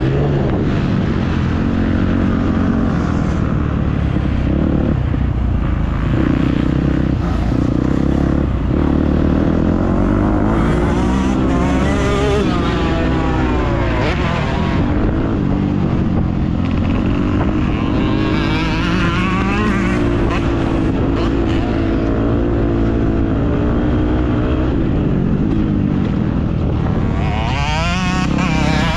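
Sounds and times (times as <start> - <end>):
dirt bike engine revving: 6.0 - 24.7, 26.2 - 28.9.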